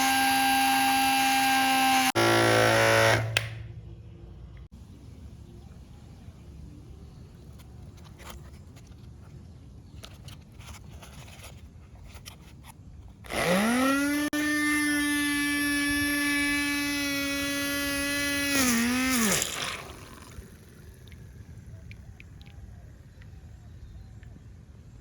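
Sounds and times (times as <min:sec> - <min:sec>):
electric motor whining: 0:00.0 - 0:03.6, 0:13.3 - 0:20.9.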